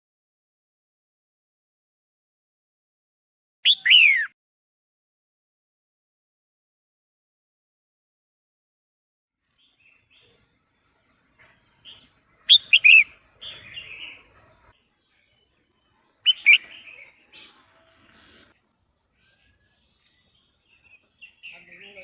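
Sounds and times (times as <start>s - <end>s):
soft bird twittering: 9.5s - 22.0s
bird chirping bursts: 11.8s - 14.7s, 16.2s - 21.6s.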